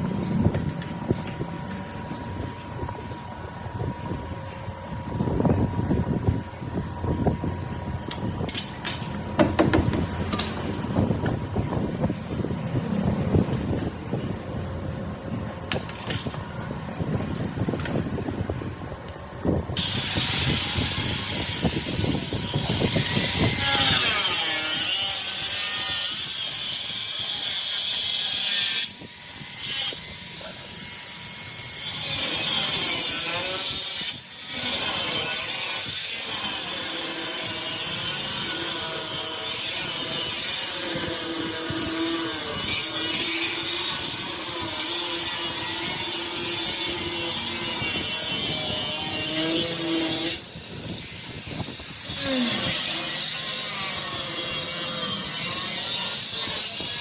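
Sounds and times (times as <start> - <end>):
power tool rumble with knocks: 7.4 - 16.6
power tool whining: 19.8 - 57.0.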